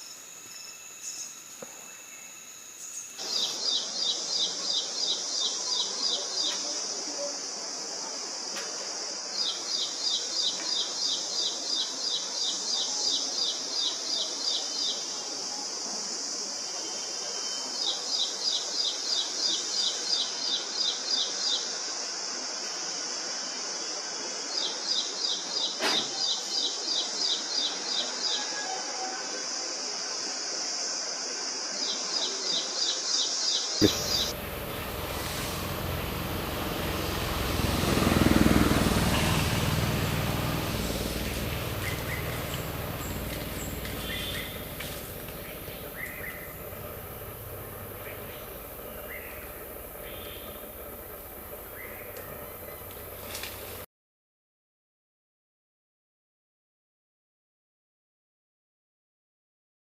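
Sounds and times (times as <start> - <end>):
high-pitched insect drone: 0.0 - 6.0
low background noise: 0.0 - 53.8
bird singing rapid high chirps: 33.8 - 38.9, 39.8 - 53.2.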